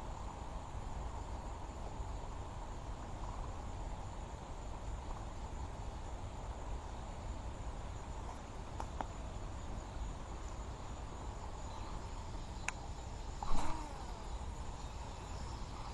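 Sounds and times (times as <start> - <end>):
insects chorus: 0.0 - 15.9
low wind rumble: 0.0 - 15.9
faint ticks: 8.2 - 9.2, 11.6 - 14.4.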